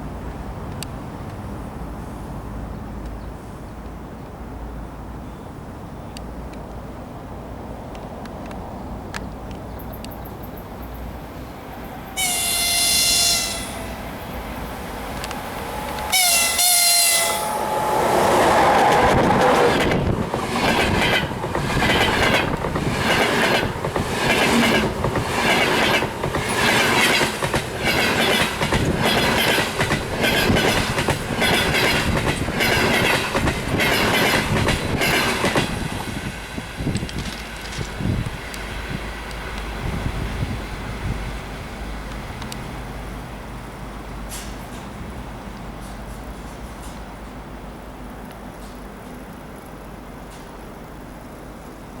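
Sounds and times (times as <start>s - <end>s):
train passing at speed: 6.6s - 48.4s
wheels clacking over rail joints: 8.2s - 47.4s
locomotive horn blasts: 12.2s - 14.1s, 15.5s - 19.2s.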